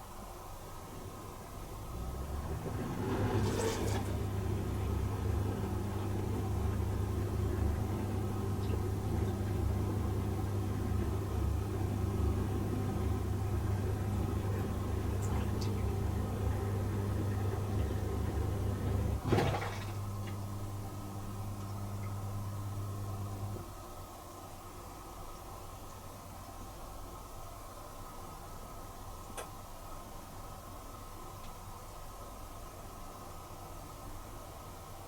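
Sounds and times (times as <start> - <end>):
dishwasher pump hum: 0.0 - 30.0
water sloshing: 2.7 - 4.8, 19.1 - 20.4.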